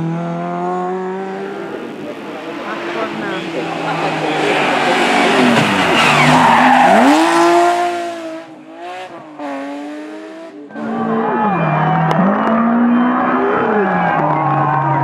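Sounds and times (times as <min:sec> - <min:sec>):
rally car engine revving: 0:00.0 - 0:15.0
tyre squeal: 0:04.2 - 0:07.6.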